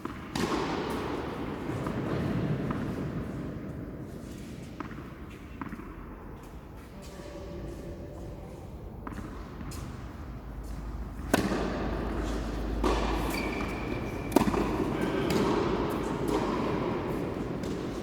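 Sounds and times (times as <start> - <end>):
tennis balls bouncing on court: 0.0 - 3.4, 4.4 - 6.6, 9.0 - 18.0
tennis balls struck with rackets: 0.0 - 3.4, 4.7 - 6.1, 9.0 - 18.0.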